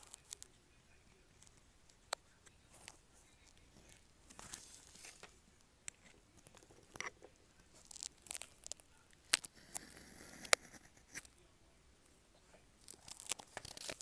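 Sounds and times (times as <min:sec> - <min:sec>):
pen nib scratching on paper: 0:07.8 - 0:11.4.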